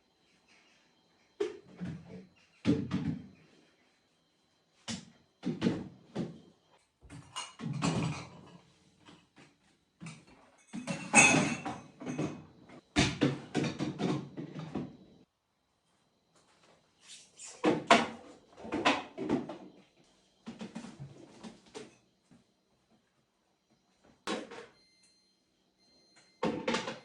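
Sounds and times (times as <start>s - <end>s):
household items knocking and clattering: 7.1s - 8.6s, 10.0s - 15.0s.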